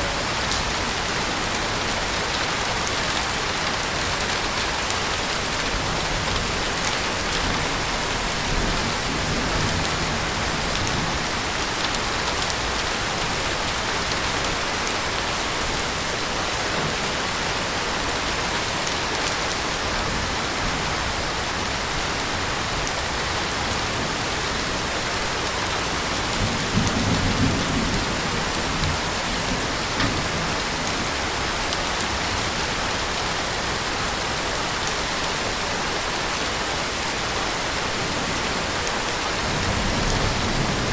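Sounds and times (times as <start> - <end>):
raindrops ticking: 0.0 - 15.9, 22.3 - 27.4
heavy rain hissing: 0.0 - 40.9.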